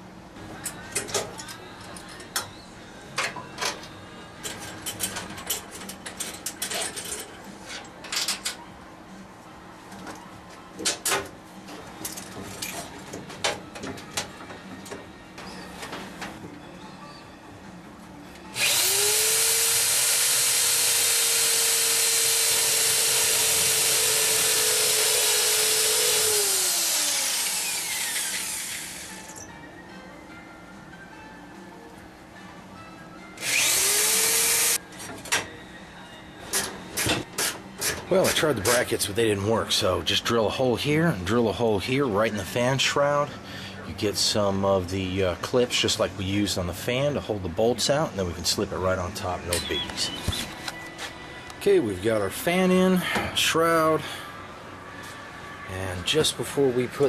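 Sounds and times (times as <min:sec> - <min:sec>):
clicks and scrapes of metal tools: 0:03.2 - 0:08.6
electric power tool whining: 0:18.5 - 0:29.4, 0:33.4 - 0:34.8.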